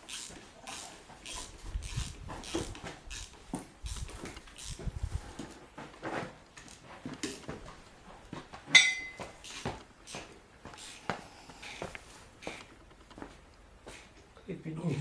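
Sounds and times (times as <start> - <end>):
metal tools clinking: 8.7 - 9.3
ringing metallic clank: 8.7 - 9.3.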